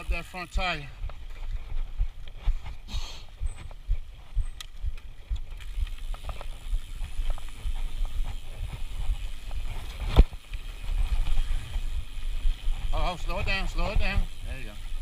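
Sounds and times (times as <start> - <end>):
mountain bike rolling over dirt: 0.0 - 15.0.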